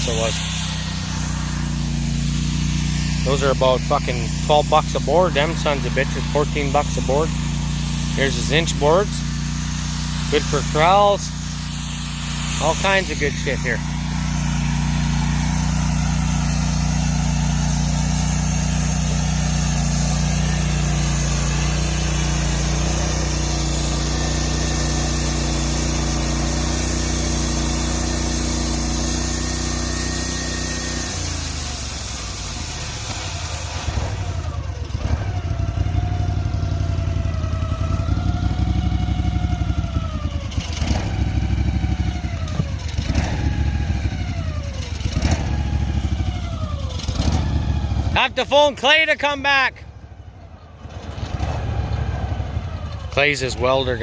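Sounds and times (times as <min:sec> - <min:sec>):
rising and falling whines: 0:00.0 - 0:26.1
sawmill engine running: 0:00.0 - 0:54.0.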